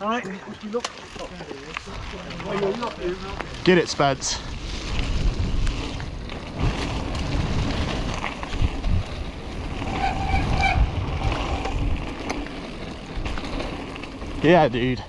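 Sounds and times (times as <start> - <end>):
mountain bike rattling on dirt trail: 0.0 - 15.0
wind on microphone: 4.4 - 12.3.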